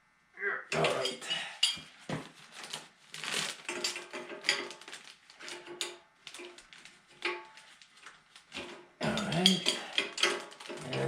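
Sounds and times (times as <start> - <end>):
metal tools clinking: 0.7 - 2.0, 3.6 - 11.0.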